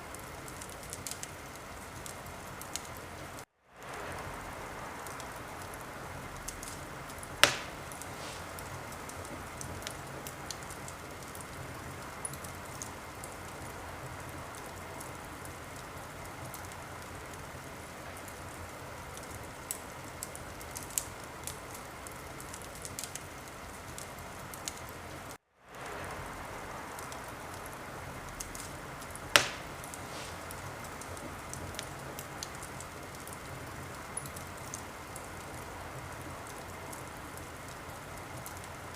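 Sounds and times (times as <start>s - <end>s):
wood fire crackling: 0.0s - 38.9s
loud sharp fire pops: 6.4s - 11.5s, 28.4s - 33.4s.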